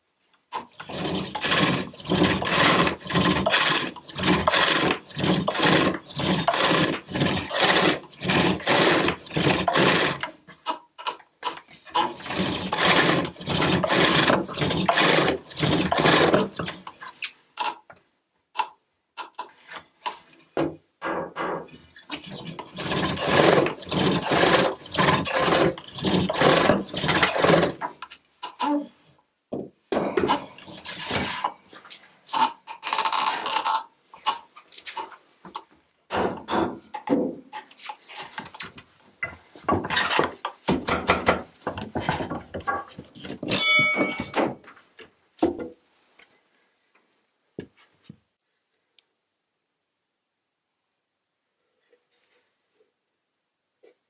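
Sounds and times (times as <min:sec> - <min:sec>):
wooden knocks and clatter: 0:00.5 - 0:17.0, 0:20.6 - 0:28.6, 0:29.5 - 0:31.4, 0:35.0 - 0:44.8
hook tool rasping wood on lathe: 0:00.8 - 0:10.4, 0:11.5 - 0:16.9, 0:22.1 - 0:27.9, 0:30.6 - 0:31.4
short metallic ring: 0:43.5 - 0:44.4.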